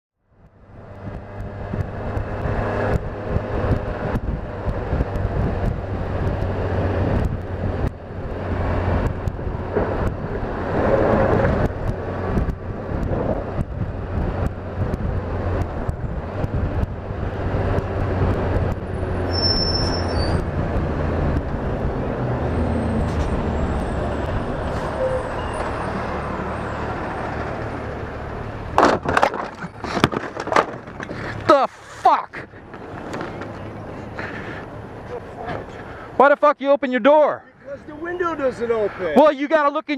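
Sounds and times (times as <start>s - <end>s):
passing traffic: 0.2s - 39.9s
car door striking motorcycle: 28.8s - 31.0s.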